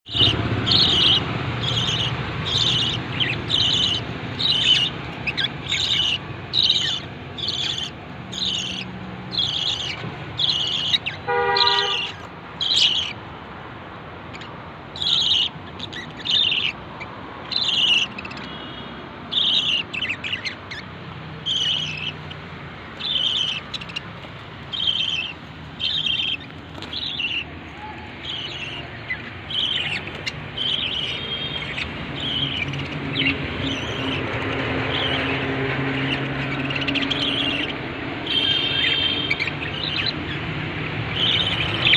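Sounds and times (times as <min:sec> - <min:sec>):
lovebirds chirping shrilly: 0:00.1 - 0:13.4, 0:14.2 - 0:41.9.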